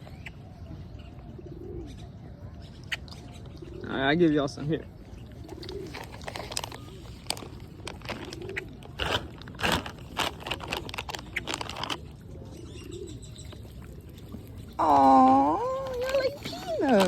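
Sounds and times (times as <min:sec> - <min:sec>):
pigeons cooing: 0:01.2 - 0:02.2, 0:05.2 - 0:09.9, 0:11.2 - 0:17.0.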